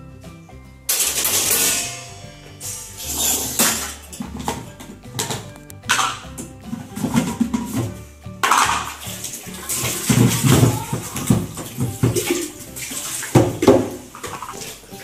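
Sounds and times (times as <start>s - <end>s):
metal jar knocking: 3.0s - 14.6s
tap water splashing into metal jar: 7.0s - 14.8s.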